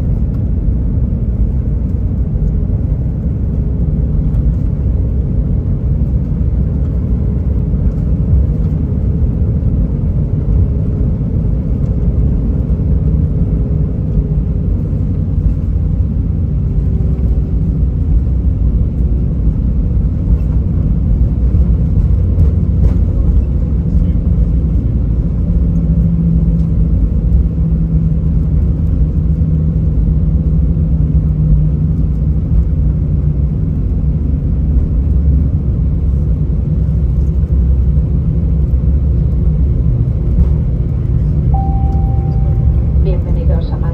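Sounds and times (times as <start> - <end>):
aircraft engines idling: 0.0 - 43.9
faint steady hum: 41.5 - 43.9.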